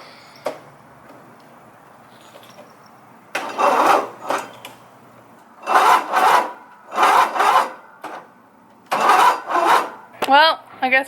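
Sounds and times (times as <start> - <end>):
electric starter cranking engine: 3.3 - 4.8, 5.6 - 10.1.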